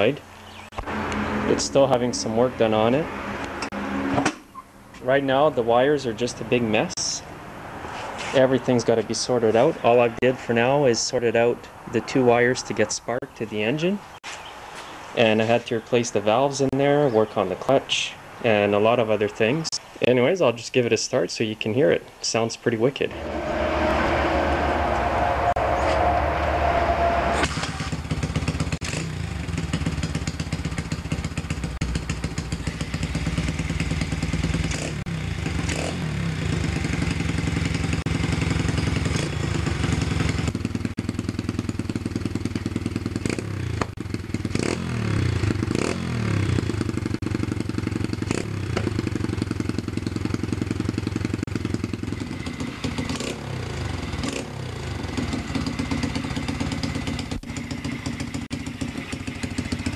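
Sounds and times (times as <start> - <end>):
motorbike engine idling: 27.7 - 44.6, 46.5 - 59.9.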